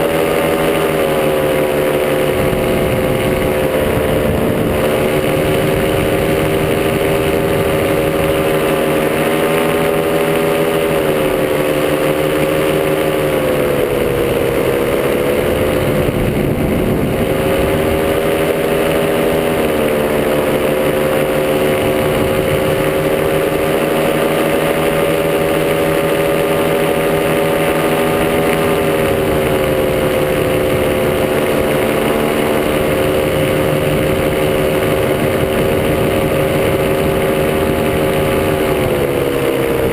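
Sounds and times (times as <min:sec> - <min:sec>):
paramotor engine in flight: 0:00.0 - 0:39.9.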